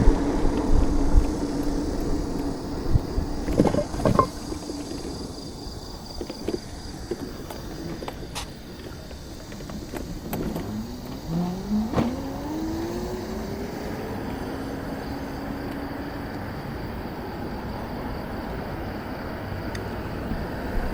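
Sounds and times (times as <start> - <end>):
vehicle motor whine: 0.0 - 5.3, 6.5 - 17.1
street traffic rumble: 0.0 - 20.9.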